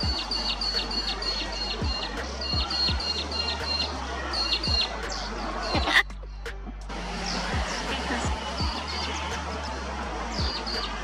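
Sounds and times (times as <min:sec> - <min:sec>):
bird chirping: 0:00.0 - 0:06.5
background music with bass: 0:00.0 - 0:11.0.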